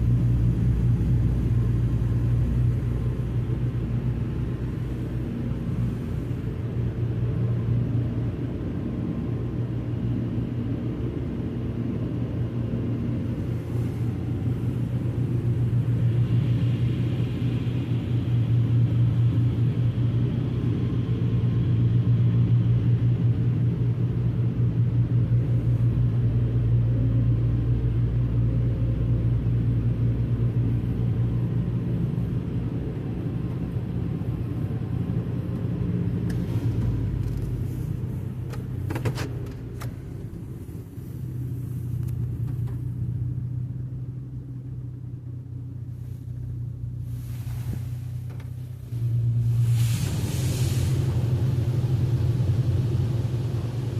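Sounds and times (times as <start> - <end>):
car wash low rumble: 0.0 - 53.9
faint higher hiss: 47.0 - 53.9.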